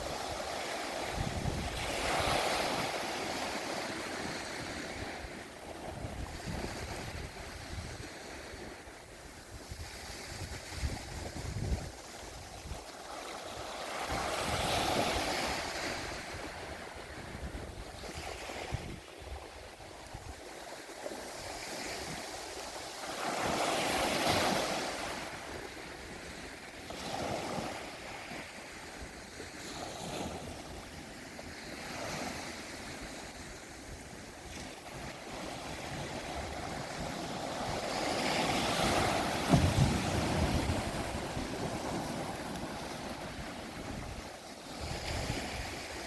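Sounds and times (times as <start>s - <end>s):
sea waves washing on rocks: 34.3s - 46.0s.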